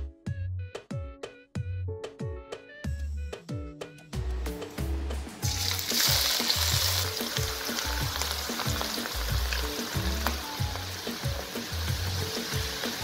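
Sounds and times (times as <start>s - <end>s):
background music with steady beat: 0.0s - 13.0s
ginger sizzling in hot oil: 5.4s - 13.0s.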